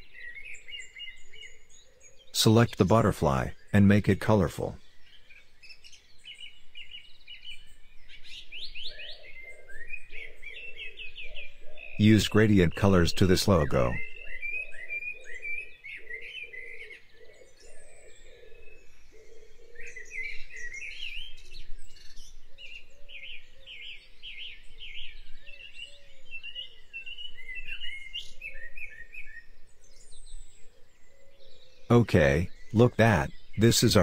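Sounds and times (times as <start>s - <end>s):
birds chirping and twittering: 0.0s - 34.0s.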